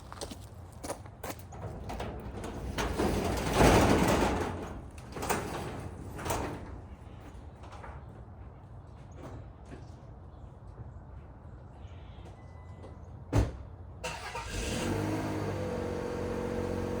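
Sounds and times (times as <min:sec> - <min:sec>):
car engine starting and idling: 0:14.0 - 0:17.0.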